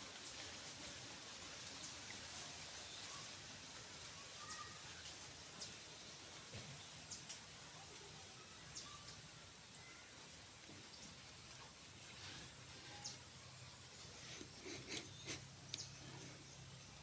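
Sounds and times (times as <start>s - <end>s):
faint bird chirps: 4.2s - 11.6s, 12.3s - 17.0s
light ticks: 7.1s - 7.5s.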